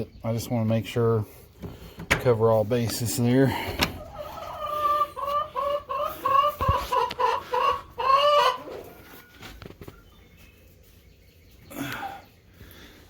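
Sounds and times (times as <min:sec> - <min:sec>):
chicken clucking: 0:03.9 - 0:11.6.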